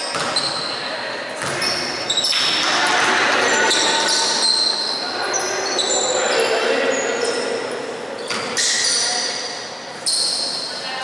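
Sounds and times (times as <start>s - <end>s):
basketball bouncing: 0.0s - 0.6s, 1.4s - 3.0s
sneakers squeaking on hardwood: 0.0s - 10.9s.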